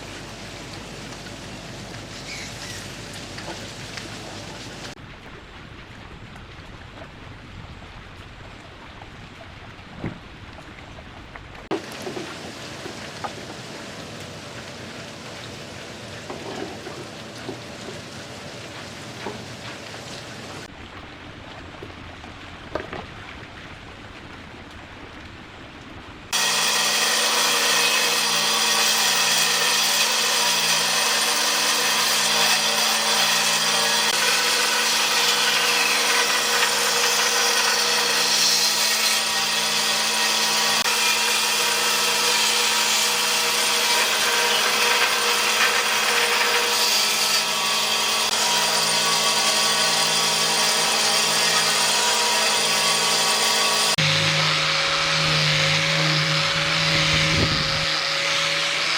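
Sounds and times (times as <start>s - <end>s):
electric power tool on wood: 26.3s - 58.9s.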